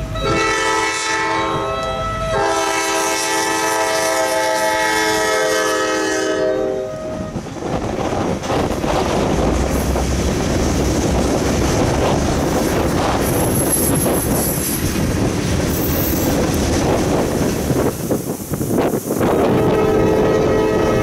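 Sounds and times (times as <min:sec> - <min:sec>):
freight train wheels rumbling: 0:00.0 - 0:21.0
clickety-clack of rail joints: 0:07.0 - 0:21.0
high wheel squeal: 0:15.7 - 0:16.5.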